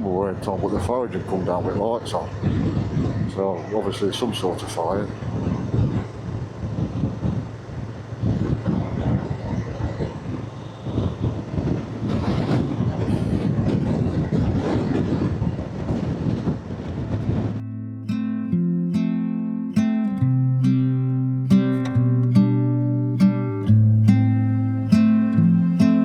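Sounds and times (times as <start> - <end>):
wind rushing over microphone: 0.0 - 18.6.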